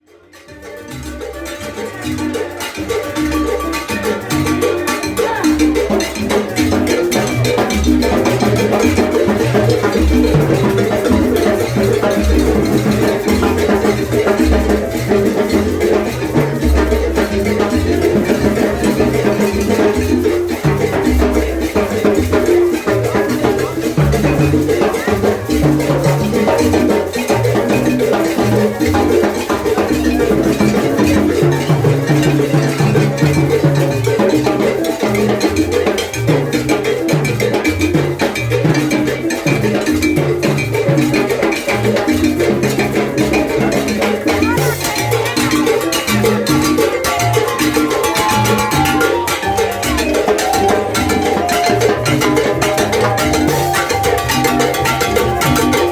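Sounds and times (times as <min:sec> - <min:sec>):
salsa music: 0:00.0 - 0:55.9.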